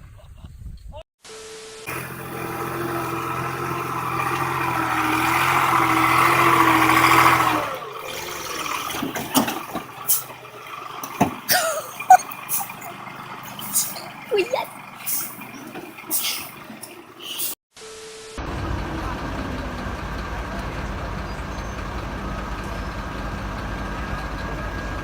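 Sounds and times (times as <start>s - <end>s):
heavy vehicle engine running: 1.8s - 17.6s, 18.4s - 25.0s
knocks and clicks: 11.0s - 11.7s.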